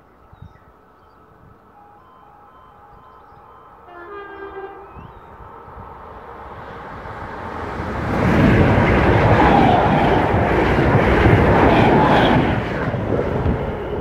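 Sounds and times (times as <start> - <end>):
two-note train horn: 1.8 - 5.2
train wheels rumbling on rail: 4.7 - 14.0.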